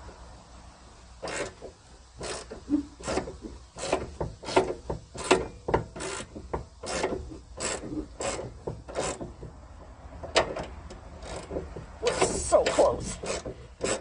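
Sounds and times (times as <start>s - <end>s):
ratchet wrench clicking: 10.3s - 14.0s.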